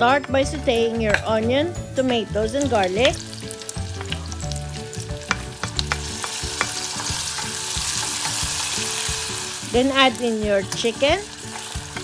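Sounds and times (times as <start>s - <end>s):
vegetables sizzling in a pan: 0.7s - 12.0s
utensil scraping a pan: 5.3s - 12.0s.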